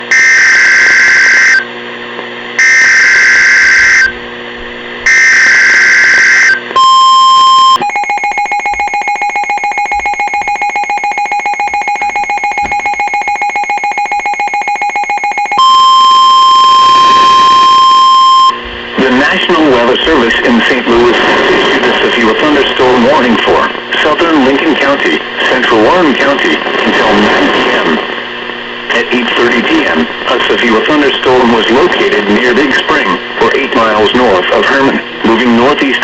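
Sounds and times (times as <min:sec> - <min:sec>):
steady alarm tone: 0:00.1 - 0:01.7, 0:02.6 - 0:04.2, 0:05.0 - 0:18.7
rapid pulsing beep: 0:05.1 - 0:18.6.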